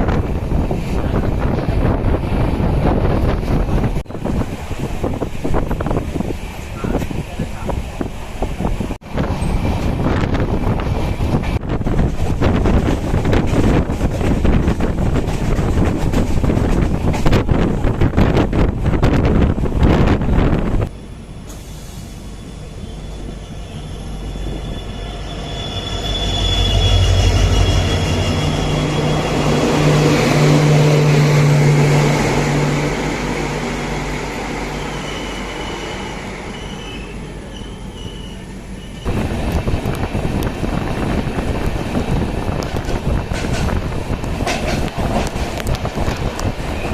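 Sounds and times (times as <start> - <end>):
wind noise: 0.0 - 21.0, 25.9 - 46.9
train passing: 0.0 - 46.9
wheel squeal: 21.6 - 29.4, 34.8 - 39.1.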